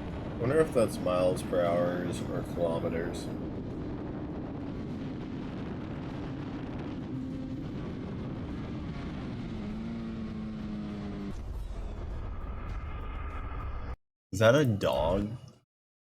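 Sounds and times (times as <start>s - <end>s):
wind rush: 0.0s - 14.0s
motorcycle engine running: 6.1s - 11.4s.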